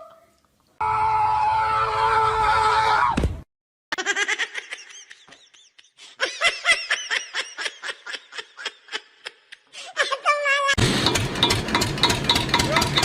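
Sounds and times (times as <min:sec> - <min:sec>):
person laughing hard: 0:04.0 - 0:10.8.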